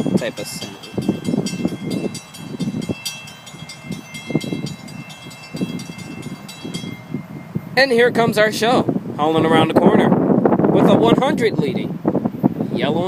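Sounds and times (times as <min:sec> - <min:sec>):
crossing signal bell ringing: 0:00.0 - 0:07.8
train rumble: 0:00.0 - 0:09.6.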